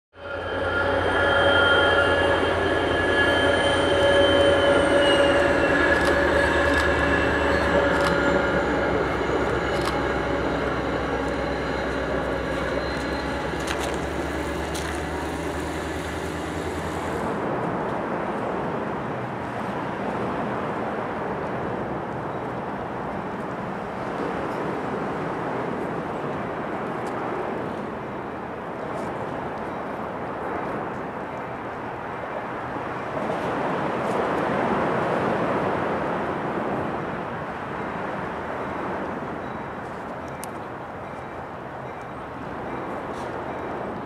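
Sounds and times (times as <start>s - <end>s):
diesel locomotive engine rumble: 0.1s - 44.0s
whining tones: 0.2s - 17.4s
steady outdoor hum: 0.2s - 29.5s
train wheels clicking: 0.4s - 17.3s.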